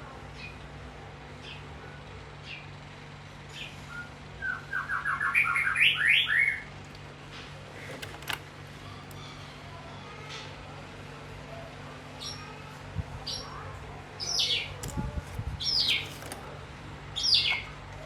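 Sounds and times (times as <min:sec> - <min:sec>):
songbird singing: 0:03.5 - 0:06.7.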